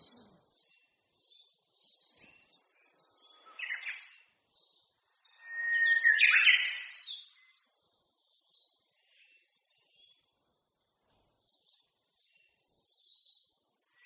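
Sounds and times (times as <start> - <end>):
songbirds chirping: 0.0 - 14.0
bird song with long whistle: 5.2 - 7.6.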